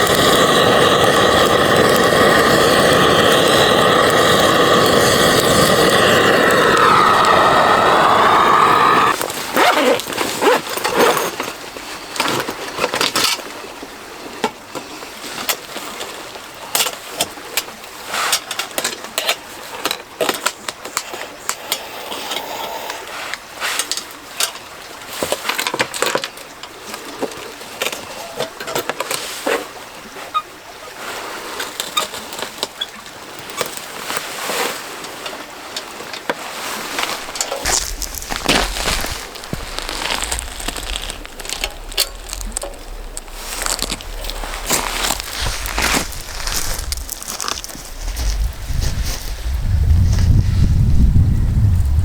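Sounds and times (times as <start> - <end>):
wind buffeting microphone: 0.0 - 9.2, 36.9 - 52.0
gusty wind: 0.0 - 9.7, 36.9 - 52.0
tent flapping and rustling: 36.6 - 50.8.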